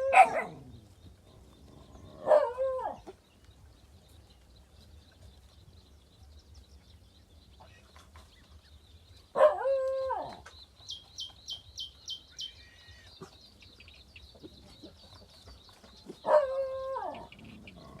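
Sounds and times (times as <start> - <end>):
bird chirping quickly: 10.5 - 18.0.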